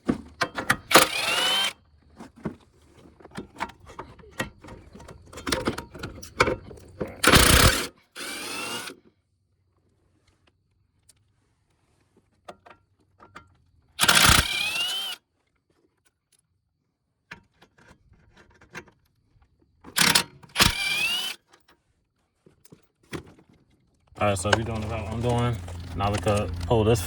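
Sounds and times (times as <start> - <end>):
power tool whining: 0.7 - 1.8, 7.0 - 9.0, 14.0 - 15.2, 20.0 - 21.4, 24.2 - 27.0.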